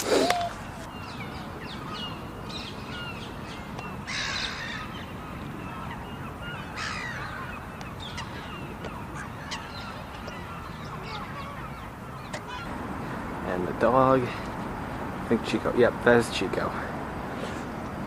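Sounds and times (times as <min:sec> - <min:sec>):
brief hissing rushes: 0:00.0 - 0:00.6
flock of birds calling: 0:00.0 - 0:13.4.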